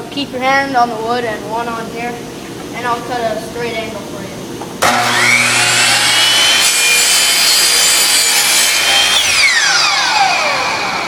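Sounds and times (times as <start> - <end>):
miter saw cutting wood: 4.8 - 11.0
saw motor winding down: 4.8 - 11.0.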